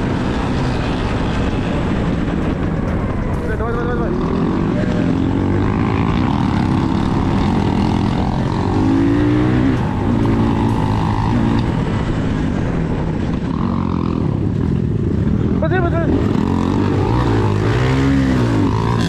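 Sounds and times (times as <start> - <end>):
motorcycle engine revving: 0.0 - 19.0
road and wind noise: 0.0 - 19.0.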